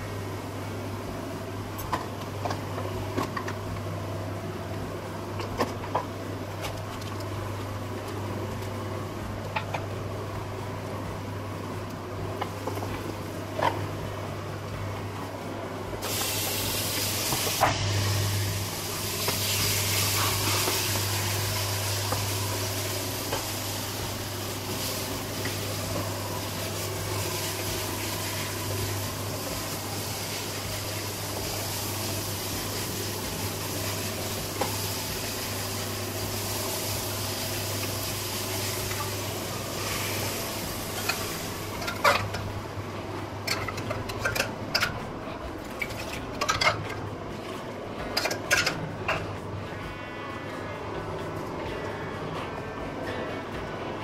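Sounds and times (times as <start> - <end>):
food sizzling in hot oil: 16.0 - 42.5.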